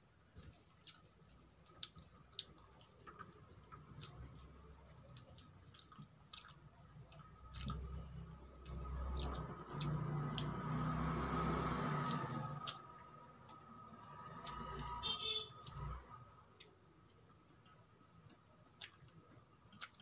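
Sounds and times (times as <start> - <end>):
wet chewing and lip-smacking: 0.5 - 11.1, 16.5 - 20.0.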